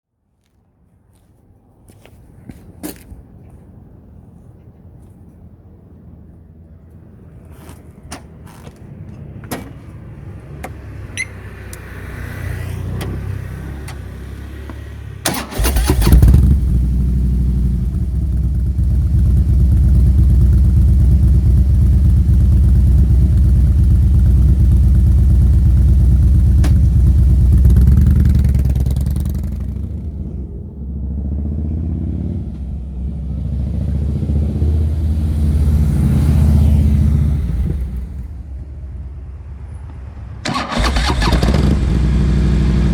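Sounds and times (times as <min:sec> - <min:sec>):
motorcycle engine exhaust note: 0:15.8 - 0:31.8.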